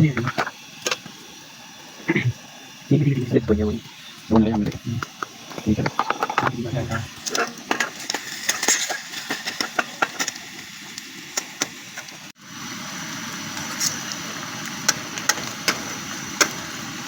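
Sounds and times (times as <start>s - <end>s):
food frying with crackles: 0.0s - 17.0s
wood fire crackling and popping: 4.3s - 12.3s, 13.5s - 17.0s.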